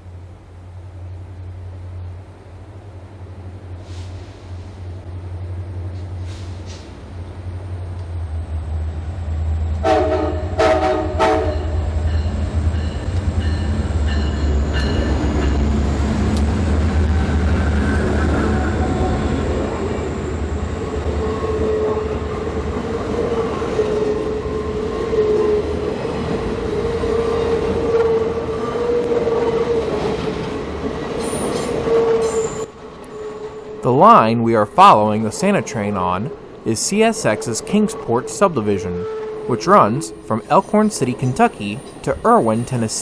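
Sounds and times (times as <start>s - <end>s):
diesel locomotives rumbling: 0.0s - 43.0s
train horn blasts: 9.8s - 12.3s, 21.2s - 22.3s, 23.7s - 25.8s, 26.8s - 29.8s, 31.7s - 34.1s, 37.1s - 40.3s
wheel squeal: 31.2s - 33.7s.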